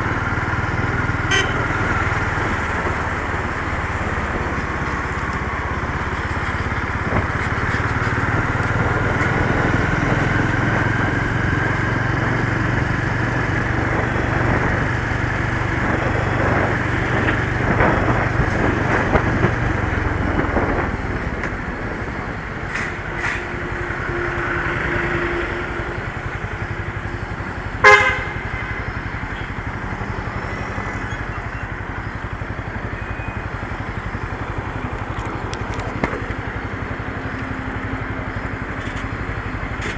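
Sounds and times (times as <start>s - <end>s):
motorcycle engine running: 0.0s - 39.9s
horn beep: 1.2s - 2.1s, 27.8s - 29.5s.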